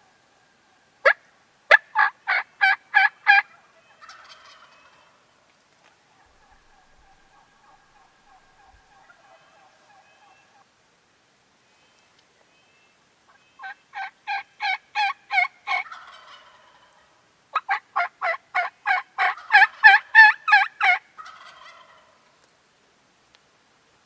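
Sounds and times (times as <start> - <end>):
turkey yelping: 1.0 - 5.1, 6.2 - 10.6, 13.6 - 16.9, 17.6 - 22.1.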